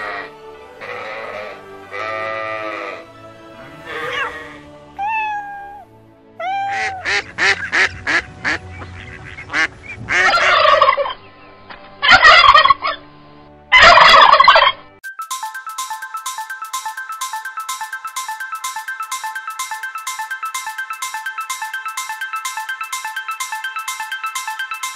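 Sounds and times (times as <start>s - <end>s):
sheep bleating: 0.0s - 3.1s
background music: 0.0s - 24.9s
ducks quacking: 6.7s - 11.2s, 12.0s - 13.0s, 13.8s - 14.8s
turkey gobbling: 6.8s - 11.2s, 12.0s - 13.0s, 13.7s - 14.8s
ringtone-like jingle: 13.8s - 24.9s.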